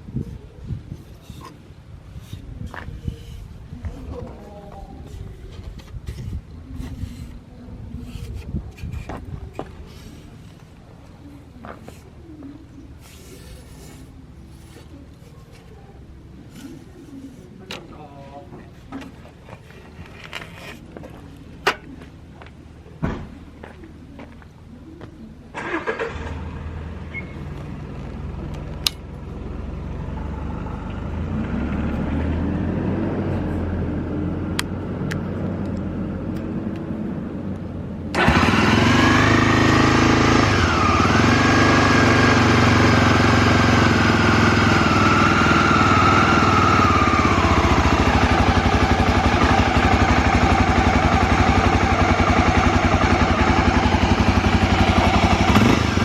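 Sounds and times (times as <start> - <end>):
motorcycle engine idling: 38.1 - 56.0.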